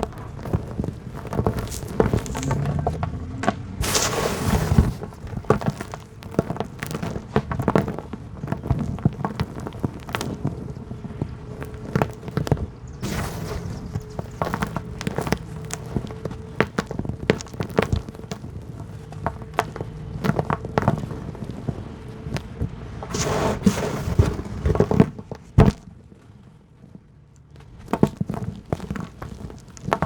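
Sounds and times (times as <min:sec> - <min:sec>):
falling grit and sand: 0:00.0 - 0:30.0
hard dirt crumbling: 0:00.0 - 0:30.0.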